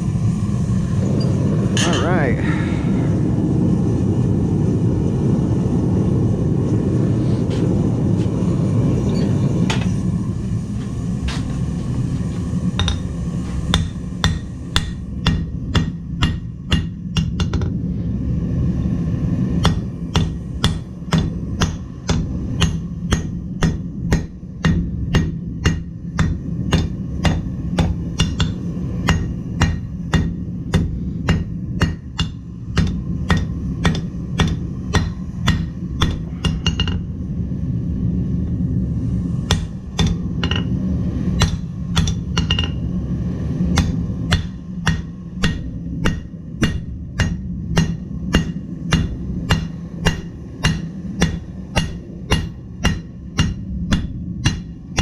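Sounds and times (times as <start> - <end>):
steady low rumble: 0.0 - 55.0
hammer striking steel on anvil: 12.8 - 17.8, 19.6 - 37.1, 39.5 - 40.8, 41.4 - 42.8, 43.7 - 55.0.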